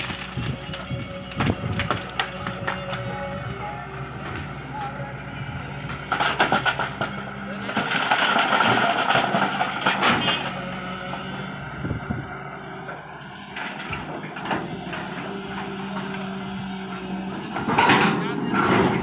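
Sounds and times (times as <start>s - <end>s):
heavy diesel engine running: 0.0s - 19.0s
knocks and clanks: 5.8s - 10.5s, 17.0s - 19.0s.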